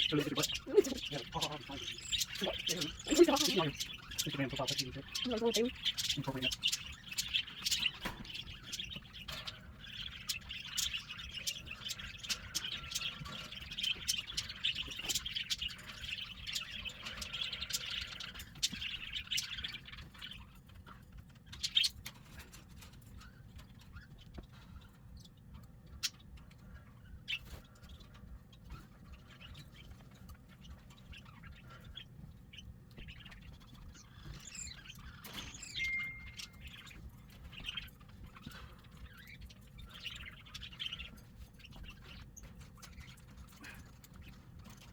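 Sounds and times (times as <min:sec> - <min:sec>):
cockatiels chirping and calling: 0:00.0 - 0:44.9
whistled bird note: 0:35.2 - 0:36.7.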